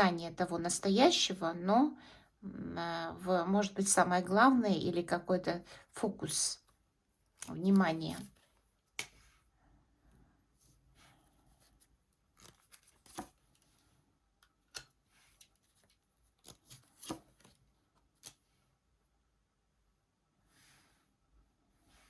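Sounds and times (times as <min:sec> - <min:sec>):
cards tapping and rustling on table: 0:12.4 - 0:13.4, 0:16.4 - 0:17.6.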